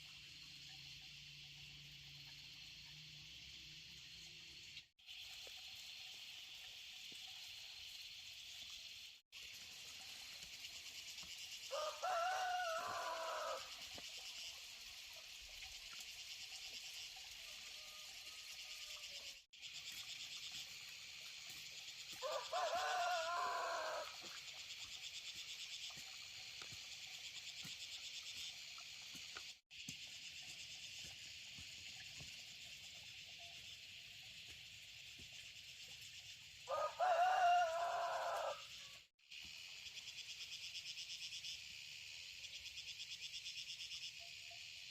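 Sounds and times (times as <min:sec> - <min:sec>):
insects droning: 0:00.0 - 0:44.9
rooster crowing: 0:11.7 - 0:13.7, 0:22.2 - 0:24.1, 0:36.7 - 0:38.8.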